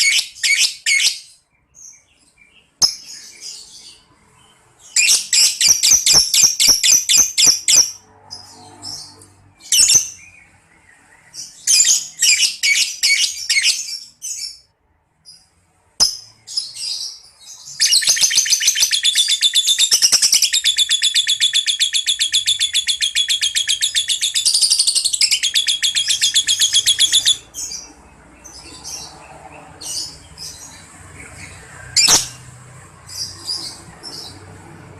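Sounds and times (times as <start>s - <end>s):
bird chattering trills: 17.7s - 27.9s.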